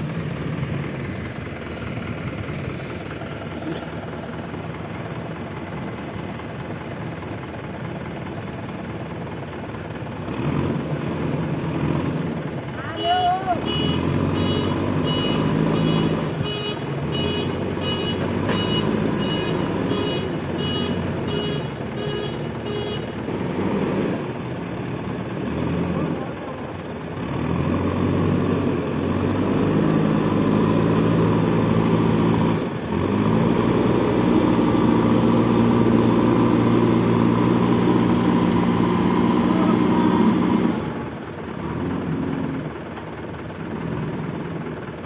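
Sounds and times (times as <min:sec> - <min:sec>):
heavy diesel engines under load: 0:00.0 - 0:45.0
reversing alarm beeping: 0:13.7 - 0:22.9.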